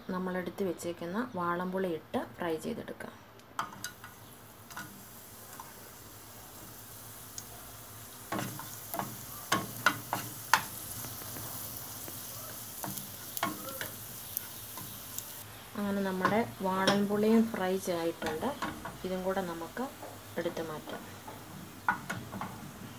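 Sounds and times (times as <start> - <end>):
food sizzling in oil: 3.6 - 22.9.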